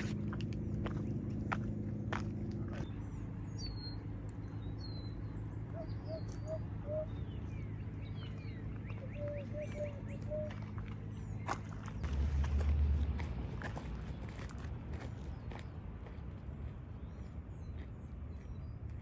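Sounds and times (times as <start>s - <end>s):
steady low rumble: 0.0s - 19.0s
birds chirping and whistling: 3.5s - 11.6s.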